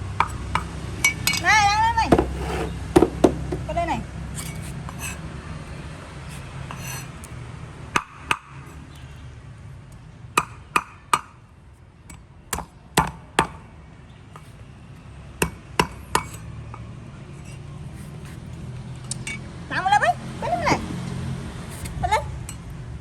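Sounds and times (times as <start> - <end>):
sharp knocks of hard objects: 2.1 - 3.8, 8.0 - 8.6, 10.4 - 11.4, 12.6 - 13.6, 15.4 - 16.9.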